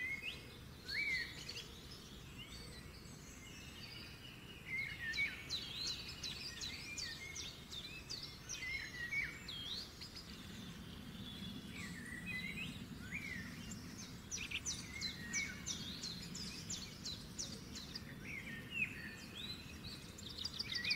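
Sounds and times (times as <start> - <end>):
birds chirping and singing: 0.0 - 20.9.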